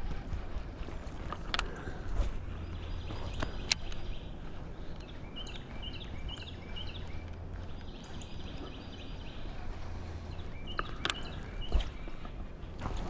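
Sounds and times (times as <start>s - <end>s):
steady outdoor noise: 0.0s - 13.0s
songbird chirping: 0.3s - 13.0s.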